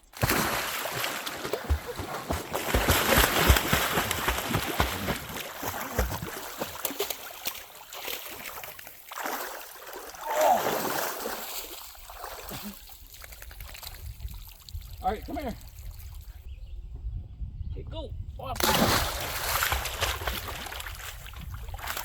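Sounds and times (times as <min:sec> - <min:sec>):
dog splashing in water: 0:00.2 - 0:14.0, 0:18.6 - 0:22.0.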